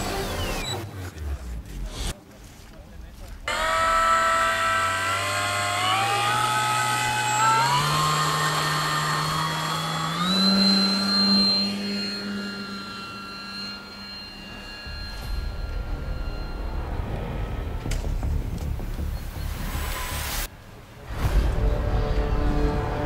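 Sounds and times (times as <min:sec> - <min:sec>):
model plane motor running: 0:03.5 - 0:15.0.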